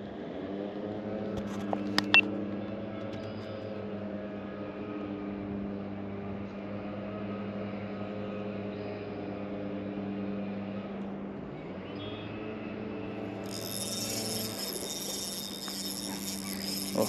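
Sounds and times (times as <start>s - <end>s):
electric motor humming: 13.2s - 17.0s.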